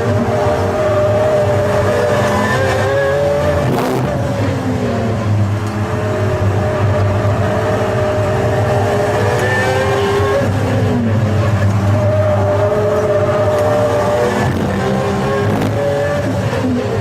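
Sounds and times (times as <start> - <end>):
supercar engine running hard: 0.0 - 17.0.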